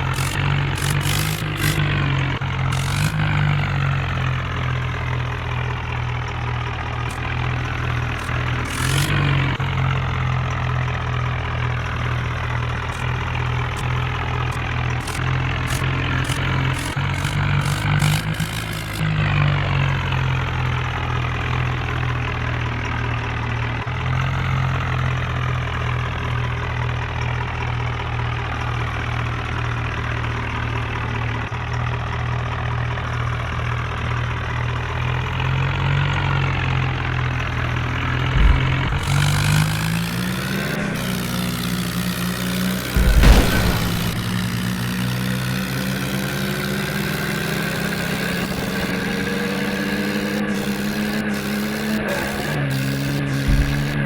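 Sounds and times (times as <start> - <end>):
tractor diesel engine running: 0.0 - 54.0
thud: 38.2 - 45.9, 52.9 - 54.0
loud knock: 38.4 - 41.6, 42.9 - 45.4, 52.9 - 54.0.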